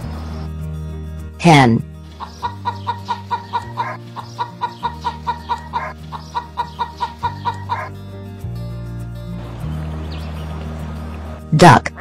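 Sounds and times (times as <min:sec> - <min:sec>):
soft background music: 0:00.0 - 0:12.0
hen clucking: 0:02.1 - 0:07.9.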